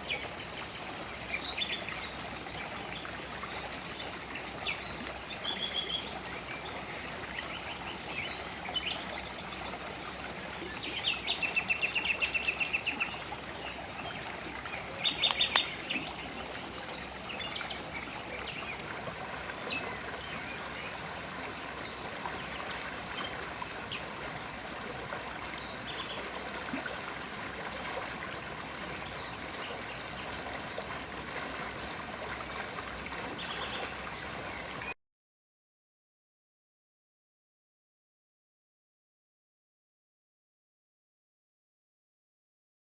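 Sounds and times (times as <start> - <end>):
river rushing: 7.7 - 18.7
small birds calling: 14.7 - 18.0.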